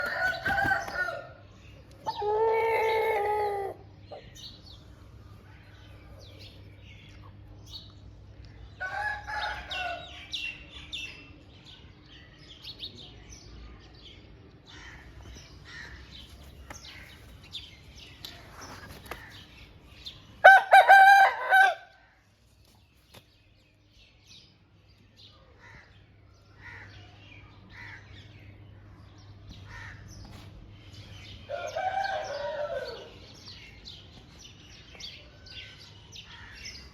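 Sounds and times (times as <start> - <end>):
rooster clucks and chirps: 0.0 - 4.6
rooster crowing: 20.4 - 21.9, 31.5 - 33.2.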